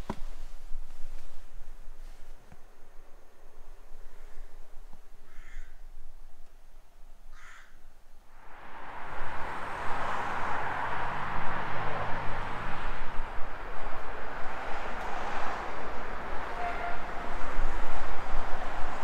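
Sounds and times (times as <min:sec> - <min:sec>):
steady rushing noise: 0:08.3 - 0:19.0.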